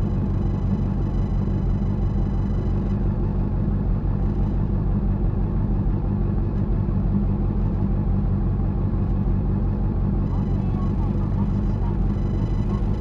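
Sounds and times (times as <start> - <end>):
motorcycle engine running: 10.3 - 13.0.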